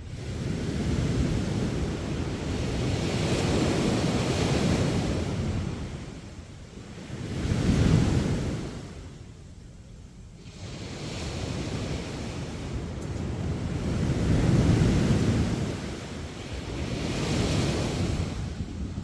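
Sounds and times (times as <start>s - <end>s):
sea waves washing on beach: 0.0s - 9.3s, 10.4s - 19.0s.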